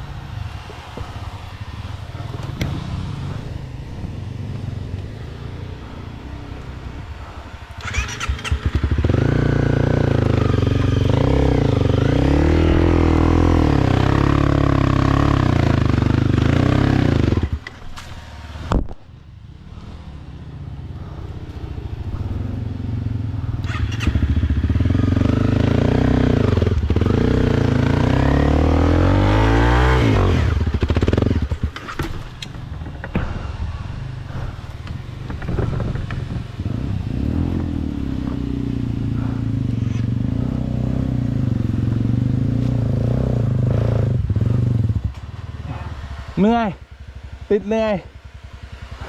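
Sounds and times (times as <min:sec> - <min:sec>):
motorcycle engine revving: 0:00.0 - 0:18.8, 0:19.4 - 0:49.0.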